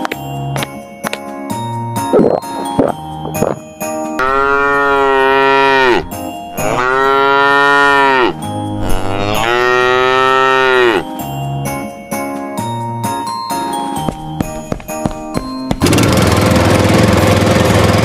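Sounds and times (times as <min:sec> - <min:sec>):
cow mooing: 0:04.2 - 0:11.1.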